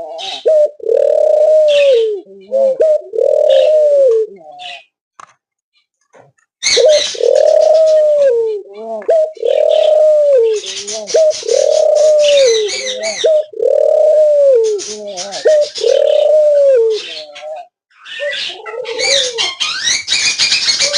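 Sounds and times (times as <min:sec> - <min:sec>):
dove cooing: 0:00.0 - 0:04.9, 0:06.6 - 0:20.9
small birds chirping: 0:04.4 - 0:05.0, 0:06.6 - 0:13.8, 0:14.5 - 0:20.9.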